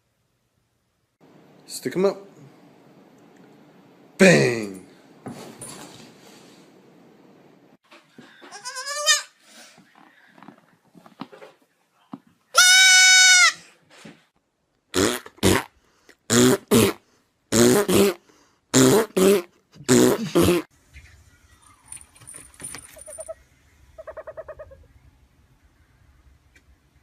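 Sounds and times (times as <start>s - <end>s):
goat bleating: 8.4s - 9.4s, 12.6s - 13.6s
harsh animal calls: 23.0s - 25.0s.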